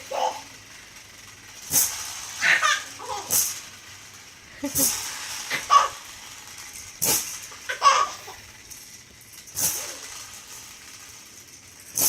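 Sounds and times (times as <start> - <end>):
baby rattle shaking: 0.0 - 12.0
baby giggling: 5.5 - 6.0, 7.7 - 8.4.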